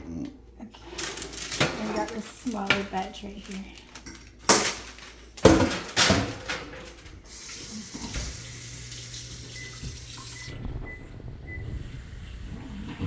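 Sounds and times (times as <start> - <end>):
kitchen tap running into sink: 5.4 - 10.5.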